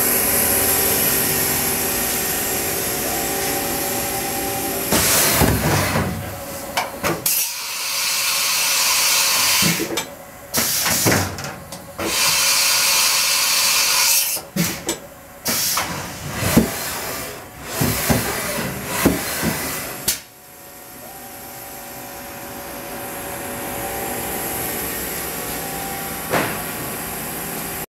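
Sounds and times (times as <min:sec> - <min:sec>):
machining center hissing: 0:00.0 - 0:09.8, 0:16.8 - 0:27.9.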